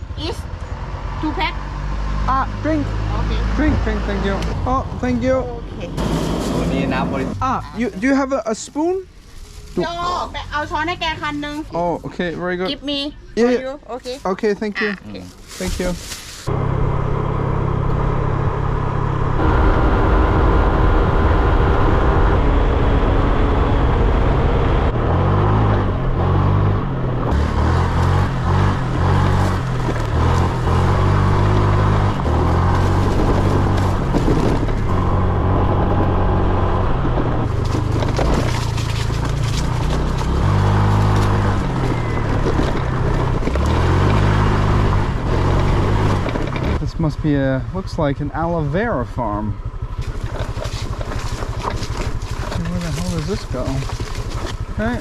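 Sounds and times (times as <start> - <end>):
road and wind noise: 0.0 - 55.0
scooter engine running: 27.3 - 36.2, 37.4 - 46.7, 48.8 - 55.0.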